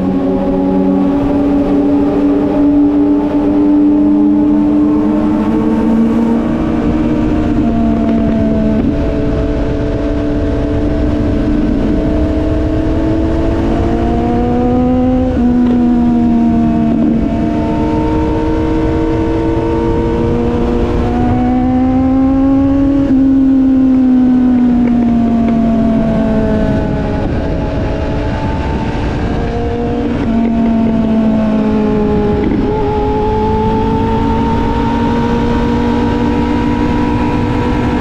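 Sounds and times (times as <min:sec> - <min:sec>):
low rumble of wind noise: 0:00.0 - 0:38.0
motorcycle engine shifting gears: 0:00.0 - 0:38.0.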